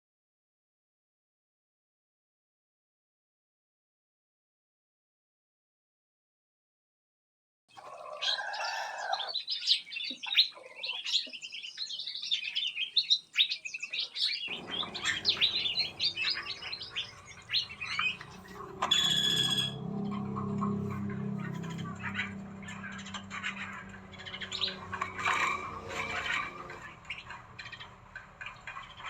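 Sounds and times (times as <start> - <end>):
small birds chirping and trilling: 7.7 - 29.0
buzzy bird call: 12.1 - 29.0
low steady hum: 14.5 - 29.0.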